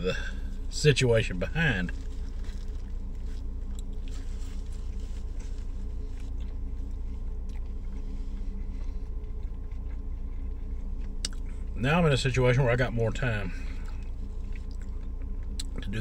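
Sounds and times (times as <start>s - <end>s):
steady low hum: 0.0s - 16.0s
person chewing sandwich: 1.8s - 11.8s, 13.5s - 16.0s.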